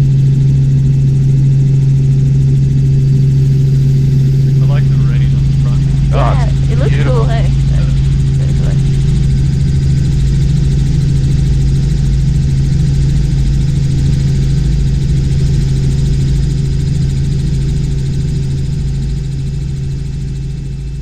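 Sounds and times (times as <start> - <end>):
helicopter engine and rotors droning: 0.0 - 21.0.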